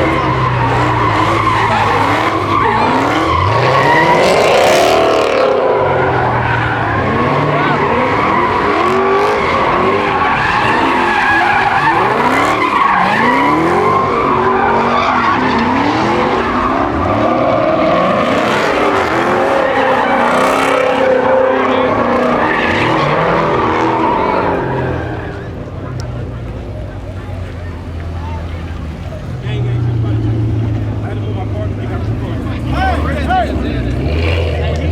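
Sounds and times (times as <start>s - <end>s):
tyres squealing: 0.0s - 25.5s
car engine revving: 0.0s - 34.9s.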